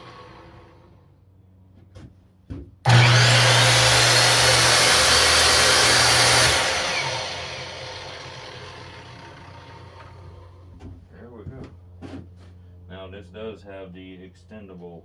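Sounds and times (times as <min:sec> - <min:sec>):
miter saw blade spinning: 0:02.9 - 0:10.6.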